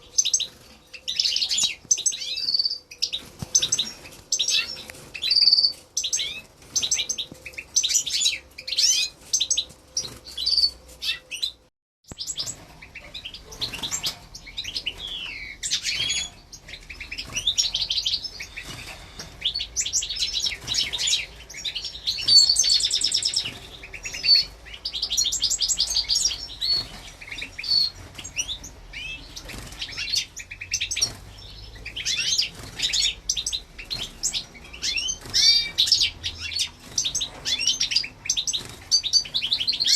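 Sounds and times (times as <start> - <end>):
finches chirping and trilling: 0.0 - 39.9.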